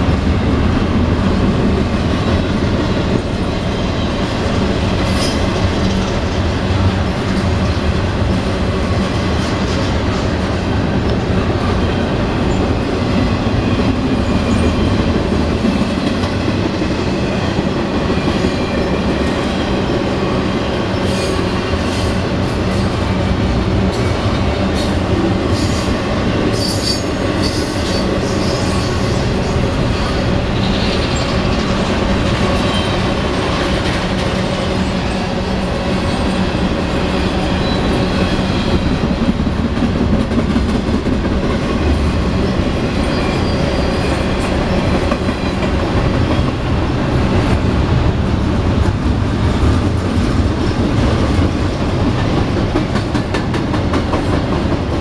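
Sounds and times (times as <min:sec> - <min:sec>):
freight train rumbling and clattering: 0:00.0 - 0:55.0
high wheel squeal: 0:43.0 - 0:44.4.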